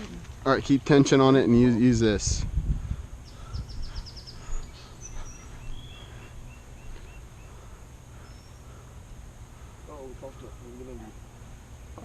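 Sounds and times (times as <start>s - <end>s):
low outdoor rumble: 0.0s - 12.0s
songbirds calling: 0.0s - 12.0s.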